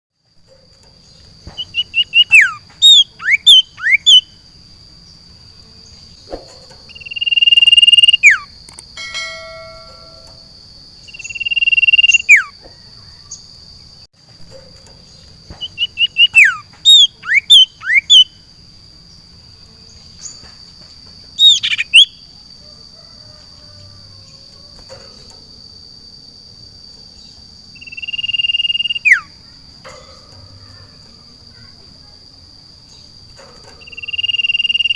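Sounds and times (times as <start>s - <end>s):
bird singing chips and whistles: 0.8s - 4.5s, 5.9s - 8.6s, 11.0s - 13.6s, 14.9s - 18.5s, 21.4s - 22.3s, 27.2s - 31.2s, 32.9s - 34.9s
steady high-pitched tone: 9.0s - 12.3s.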